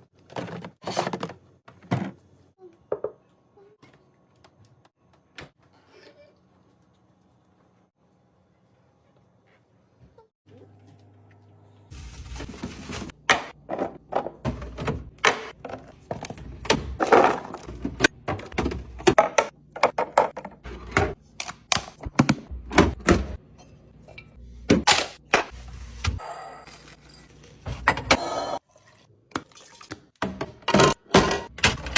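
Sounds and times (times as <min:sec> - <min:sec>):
containers clunking on fridge shelves: 0:12.6 - 0:23.4, 0:30.1 - 0:31.9.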